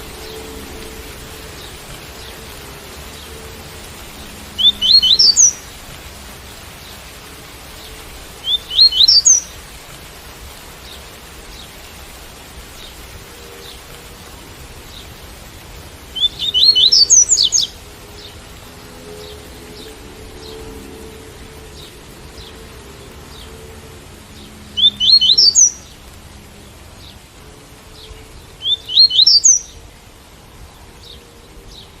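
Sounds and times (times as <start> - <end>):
rain hiss: 0.0 - 32.0
bird whistling song: 4.6 - 5.6, 8.4 - 9.5, 16.2 - 17.8, 24.8 - 25.8, 28.6 - 29.8.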